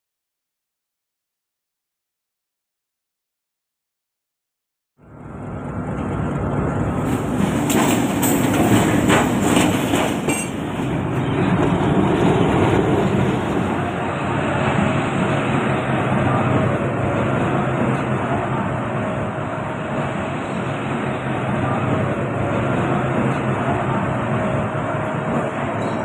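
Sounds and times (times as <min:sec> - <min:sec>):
train engine and wheel rumble: 0:05.0 - 0:26.0
wheel clacks over rail joints: 0:05.8 - 0:13.8.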